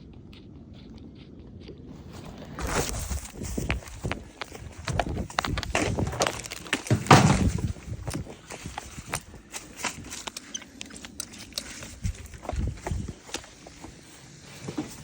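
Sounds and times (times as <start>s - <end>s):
footsteps: 0.4s - 15.0s
handling knocks and clicks: 2.1s - 13.9s.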